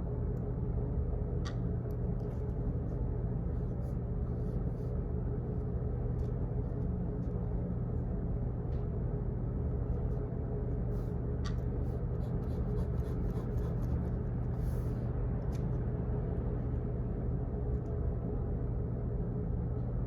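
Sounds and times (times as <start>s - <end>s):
office background hum: 0.0s - 20.0s
pen writing at a desk: 11.8s - 15.0s.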